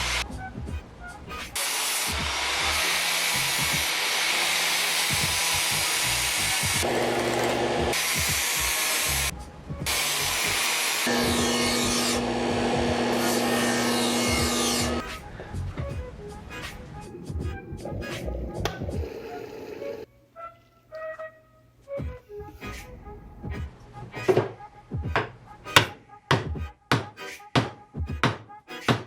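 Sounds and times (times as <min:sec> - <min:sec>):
power grinder grinding metal: 0:00.0 - 0:00.2, 0:01.6 - 0:09.3, 0:09.9 - 0:15.0.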